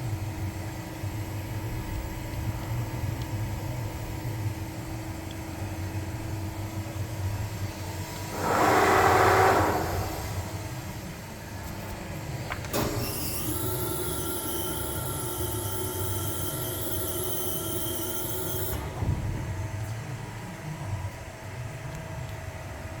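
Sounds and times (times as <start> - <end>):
machine low hum: 0.0 - 22.8
machine whine with high hiss: 7.4 - 11.4, 12.7 - 19.5
loud rush of noise: 8.3 - 11.0.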